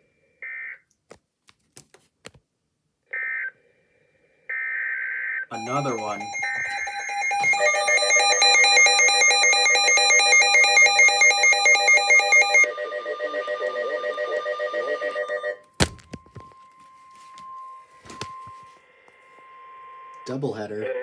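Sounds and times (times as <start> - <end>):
steady alert tone: 5.5 - 10.8
electronic alert data tones: 5.5 - 12.7.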